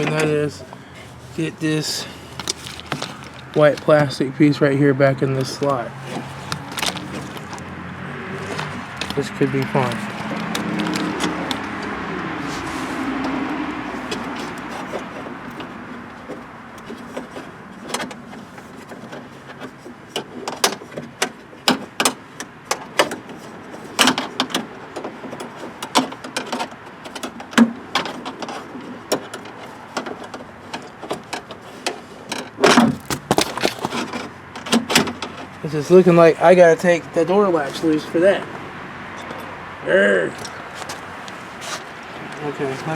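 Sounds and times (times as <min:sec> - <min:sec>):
plastic and metal clicks in car door: 0:05.6 - 0:07.7.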